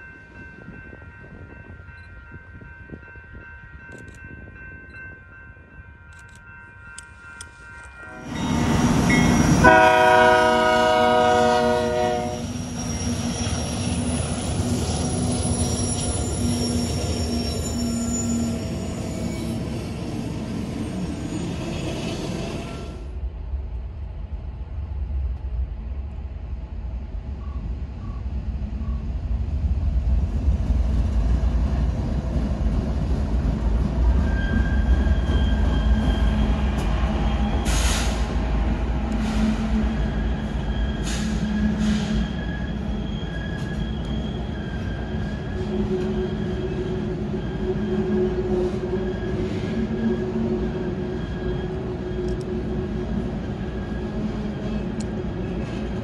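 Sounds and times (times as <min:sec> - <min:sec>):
train wheel squeal: 0:07.0 - 0:23.0, 0:34.0 - 0:38.5, 0:39.1 - 0:56.0.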